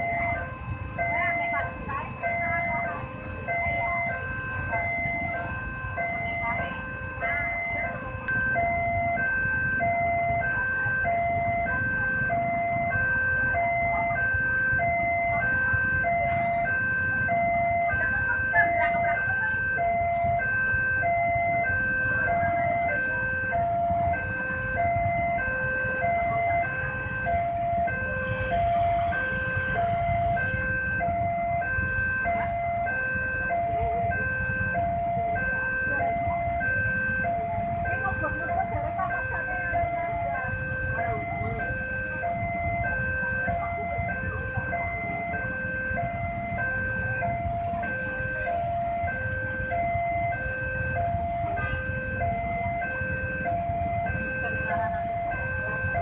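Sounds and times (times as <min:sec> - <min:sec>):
level-crossing alarm two-tone ding-dong: 0:00.0 - 0:56.0
low rumble of engines: 0:00.0 - 0:56.0.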